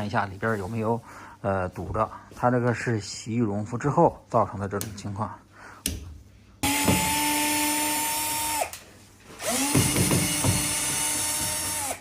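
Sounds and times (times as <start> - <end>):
cordless drill running: 6.6 - 8.8, 9.4 - 12.0.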